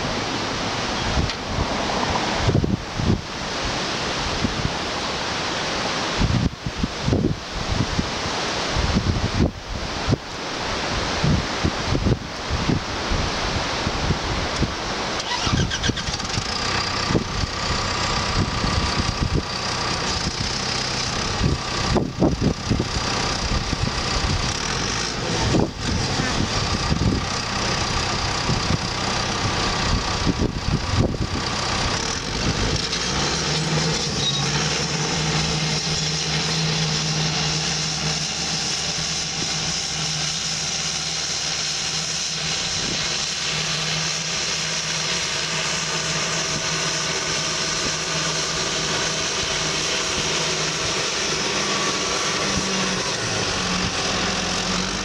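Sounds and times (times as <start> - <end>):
bulldozer diesel engine running: 11.5 - 55.0.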